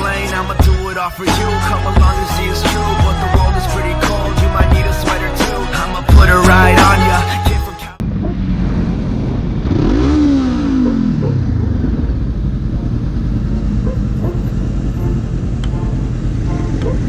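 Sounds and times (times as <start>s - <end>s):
road noise rumble: 0.0s - 17.0s
motorcycle engine running: 0.4s - 17.0s
vehicle passing by: 8.0s - 17.0s.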